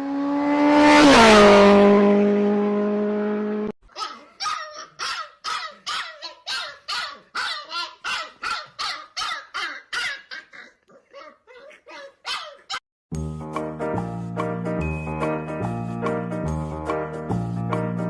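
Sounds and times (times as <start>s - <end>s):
dog barking: 3.9s - 12.8s.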